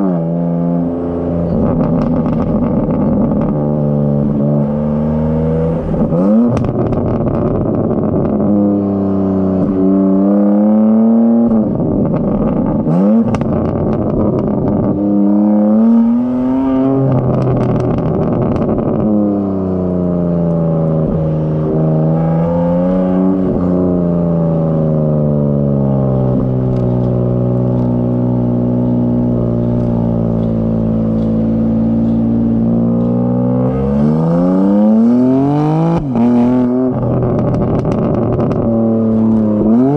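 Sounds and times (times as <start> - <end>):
car engine revving: 0.0 - 39.9
exhaust crackling clicks: 1.4 - 4.6, 5.8 - 8.6, 11.5 - 15.1, 16.6 - 19.2, 26.3 - 33.4, 35.9 - 39.9.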